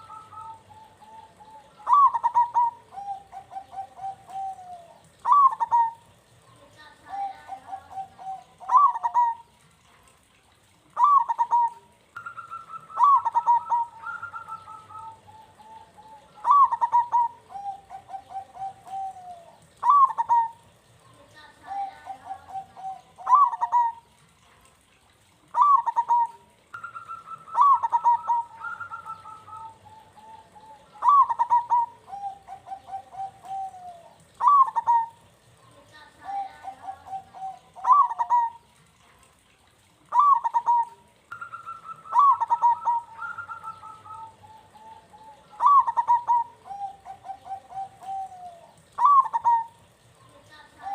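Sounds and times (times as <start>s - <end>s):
dove cooing: 0.0s - 9.6s, 10.9s - 24.2s, 25.5s - 50.9s.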